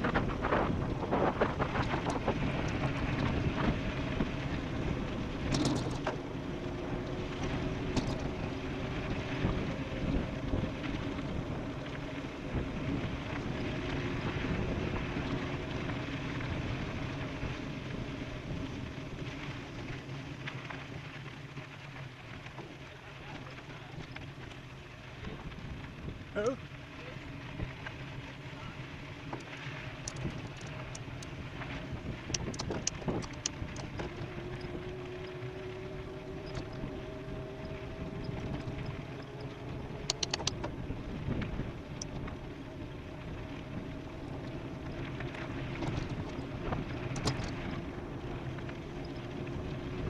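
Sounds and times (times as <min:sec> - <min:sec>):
wind rushing over microphone: 0:00.0 - 0:19.9, 0:27.4 - 0:50.0
tyres rolling on dirt road: 0:00.0 - 0:50.0
sharp clicks: 0:30.1 - 0:31.2, 0:32.3 - 0:34.0, 0:40.0 - 0:40.7.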